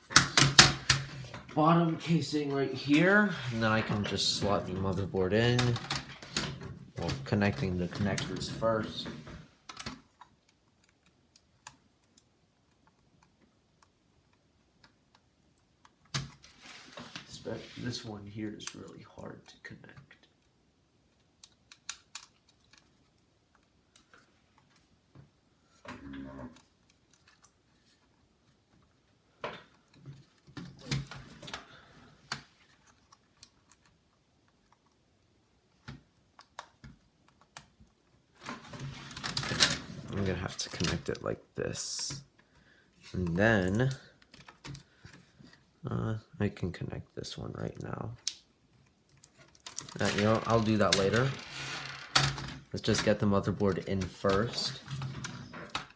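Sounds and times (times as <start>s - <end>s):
plastic connectors clicking: 49.2s - 53.0s.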